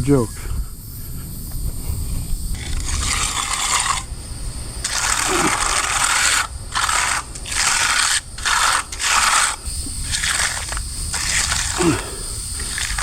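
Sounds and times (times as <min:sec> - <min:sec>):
hand tool scraping concrete: 0:02.6 - 0:04.1, 0:04.8 - 0:13.0.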